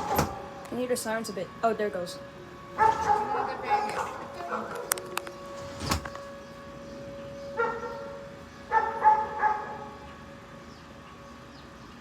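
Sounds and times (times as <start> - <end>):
distant tornado siren: 0.0 - 12.0
dog barking: 2.8 - 5.0, 7.6 - 8.0, 8.7 - 9.9.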